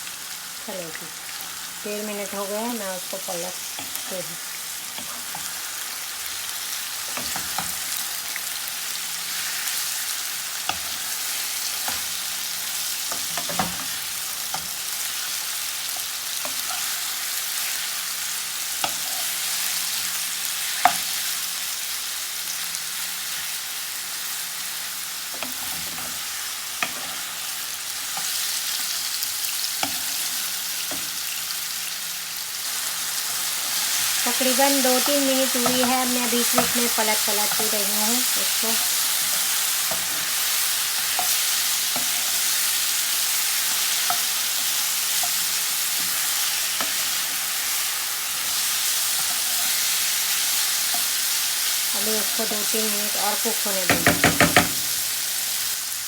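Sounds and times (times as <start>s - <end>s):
chicken sizzling in frying pan: 0.0s - 56.0s
spatula knocking and scraping: 53.9s - 55.0s.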